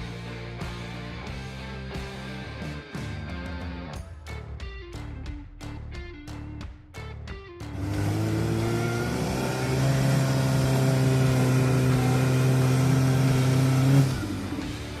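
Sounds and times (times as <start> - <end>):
car engine revving under load: 7.7 - 15.0.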